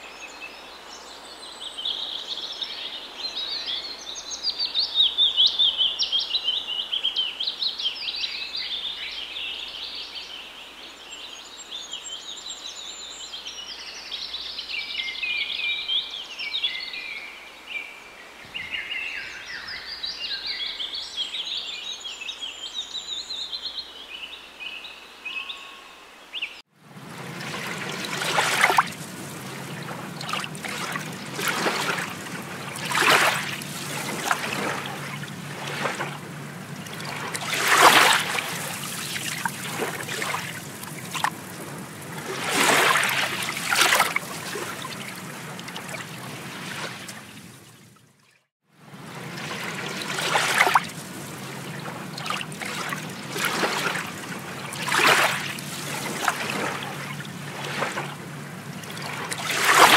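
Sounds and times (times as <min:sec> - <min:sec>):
water splashing and sloshing: 0:26.7 - 0:59.9.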